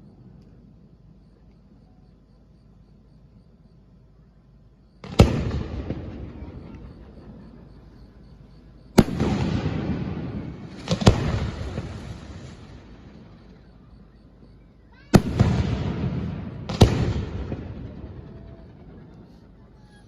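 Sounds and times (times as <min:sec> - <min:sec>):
crackle and echo: 0:05.0 - 0:19.6.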